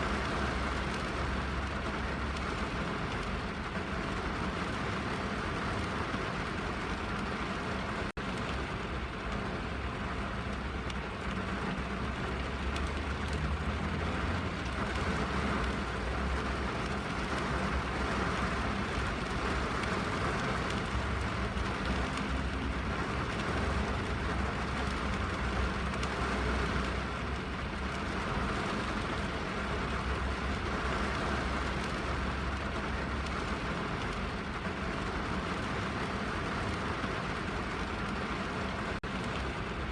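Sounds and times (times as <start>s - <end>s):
rain on car roof: 0.0s - 39.9s.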